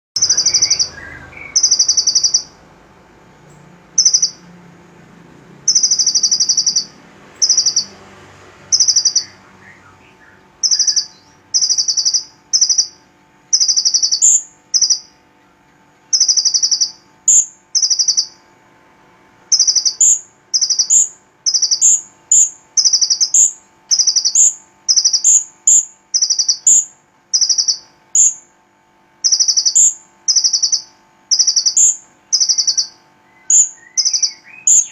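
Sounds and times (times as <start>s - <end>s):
sunbird trilled chirps: 0.2s - 2.6s, 3.5s - 4.5s, 5.6s - 8.0s, 8.6s - 15.2s, 16.1s - 18.5s, 19.5s - 28.5s, 29.2s - 34.9s.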